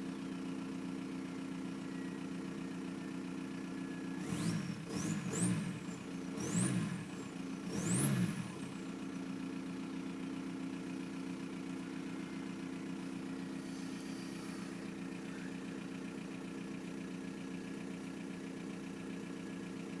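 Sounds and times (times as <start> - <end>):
diesel engine revving and idling: 3.6 - 10.2, 11.0 - 18.1.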